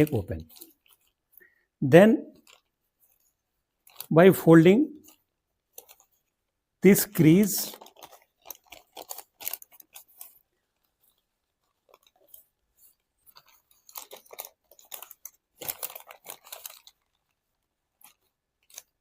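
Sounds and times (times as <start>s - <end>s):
paper being folded and creased: 0.0s - 1.3s, 2.4s - 4.1s, 5.0s - 19.0s.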